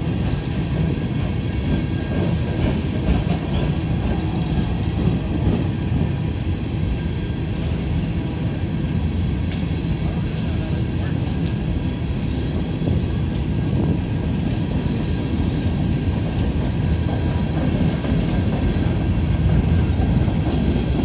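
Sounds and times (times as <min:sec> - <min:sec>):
train wheels rumbling on rail: 0:00.0 - 0:21.0
sharp rail clicks: 0:09.4 - 0:11.9.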